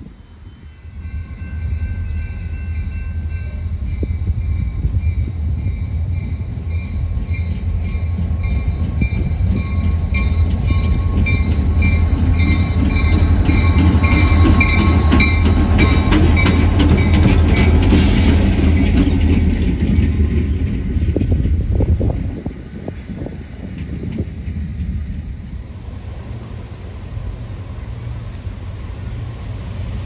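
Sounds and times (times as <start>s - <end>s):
train rumble: 0.0s - 30.0s
wheels clacking over rail joints: 7.2s - 25.0s.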